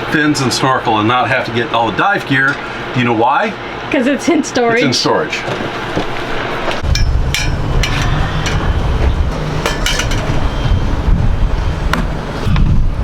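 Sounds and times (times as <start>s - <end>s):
wind buffeting microphone: 6.8s - 13.0s.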